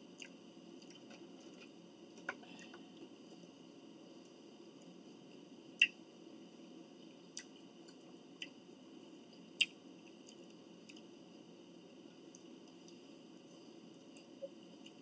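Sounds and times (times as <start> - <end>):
faint room hum: 0.0 - 15.0
mouth clicks and chewing smacks: 0.2 - 1.2, 9.6 - 11.1.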